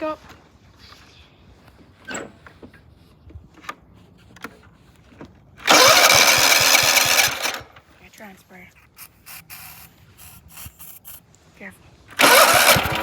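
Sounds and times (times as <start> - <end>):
electric starter cranking engine: 5.6 - 7.8, 12.1 - 13.0.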